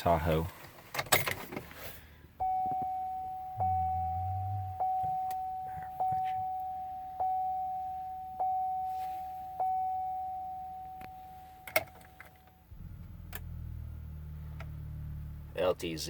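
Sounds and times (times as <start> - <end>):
low steady hum: 2.0 - 16.0
car warning chime dinging: 2.4 - 13.8.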